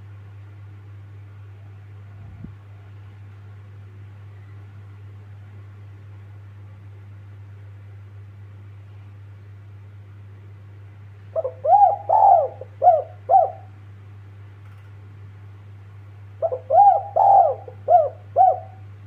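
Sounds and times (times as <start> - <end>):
dove cooing: 11.3 - 13.8, 16.4 - 19.0.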